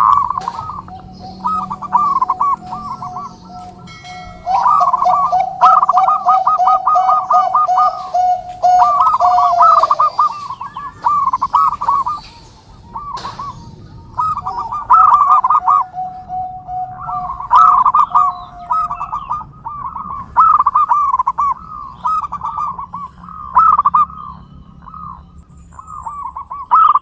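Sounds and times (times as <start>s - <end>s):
dove cooing: 0.0s - 27.0s.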